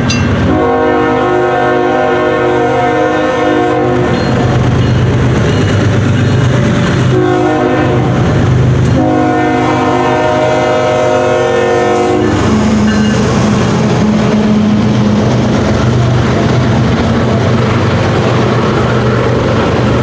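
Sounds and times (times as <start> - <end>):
locomotive rumble: 0.0 - 20.0
train wheels on rails: 0.0 - 20.0
locomotive horn blasts: 0.5 - 4.2, 7.1 - 8.3, 8.9 - 12.8.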